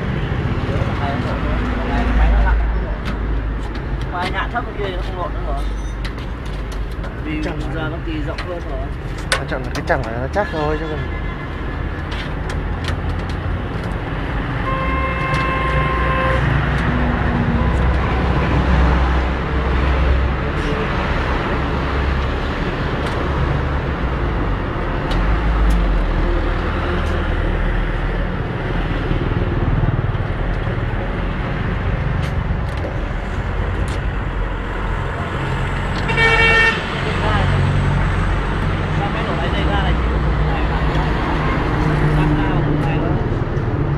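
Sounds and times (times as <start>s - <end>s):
vehicle horn toot: 14.6s - 16.6s, 36.1s - 36.8s.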